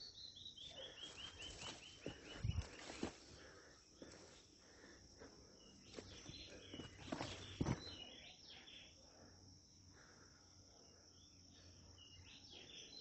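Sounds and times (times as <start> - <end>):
footsteps on forest trail: 0.6 - 8.2.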